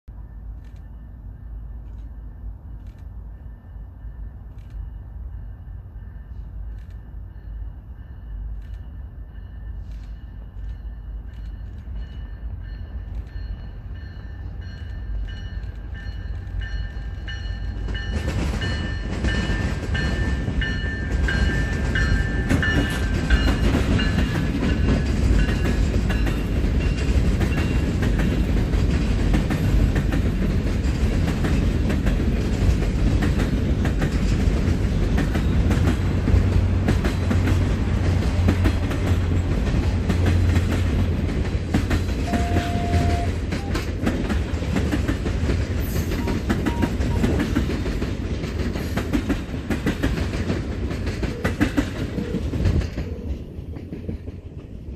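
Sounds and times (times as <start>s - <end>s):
train rumbling past: 0.0s - 54.9s
wheels clacking over rail joints: 14.8s - 54.9s.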